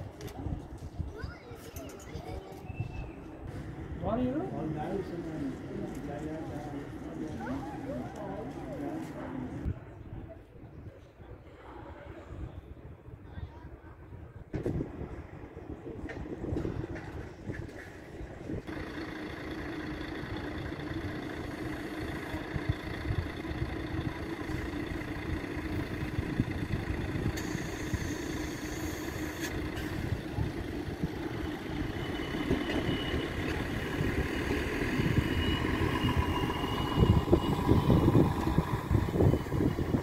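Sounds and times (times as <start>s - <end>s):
wind buffeting microphone: 0.0s - 4.0s, 9.5s - 18.7s, 22.0s - 28.2s, 29.5s - 40.0s
electric train approaching: 18.0s - 40.0s
high whine: 18.7s - 40.0s.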